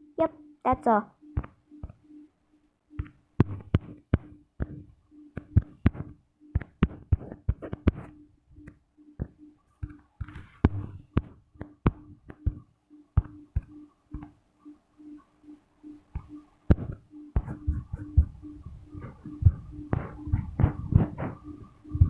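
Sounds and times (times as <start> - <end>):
taps on a touchscreen: 0.2 - 2.3, 2.9 - 14.4, 15.9 - 22.0.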